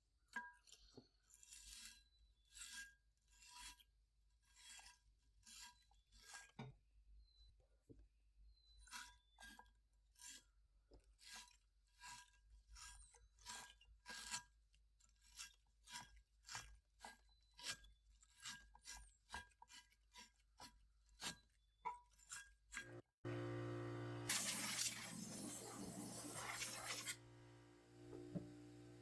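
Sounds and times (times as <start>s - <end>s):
brush scrubbing metal wheel: 24.2s - 29.0s.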